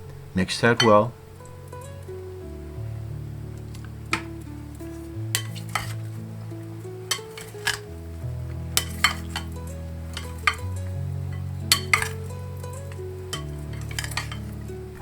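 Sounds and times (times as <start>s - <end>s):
background music: 0.0s - 15.0s
utensils clinking against a bowl: 5.0s - 6.1s, 7.0s - 7.9s, 8.8s - 14.6s.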